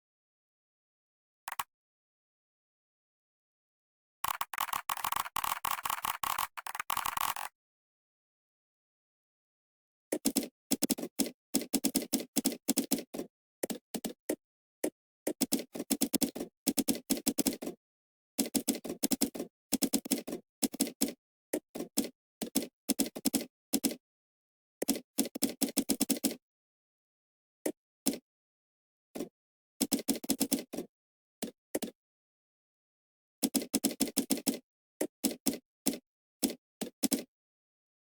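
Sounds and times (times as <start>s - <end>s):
typing on computer keyboard: 4.2s - 7.5s, 10.1s - 14.2s, 15.3s - 17.8s, 18.4s - 24.0s, 29.2s - 32.0s, 33.4s - 37.3s.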